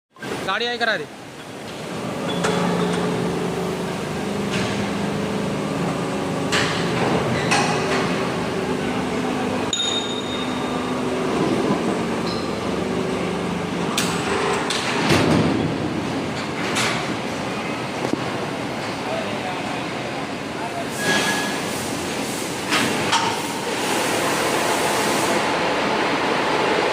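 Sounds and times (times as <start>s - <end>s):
machine hum with tones: 1.3s - 16.7s.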